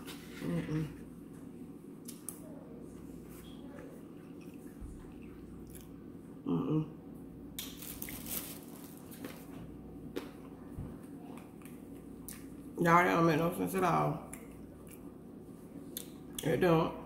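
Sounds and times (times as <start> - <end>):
person humming: 0.3 - 1.0, 6.5 - 6.9
person chewing food: 4.1 - 6.1, 14.3 - 15.2.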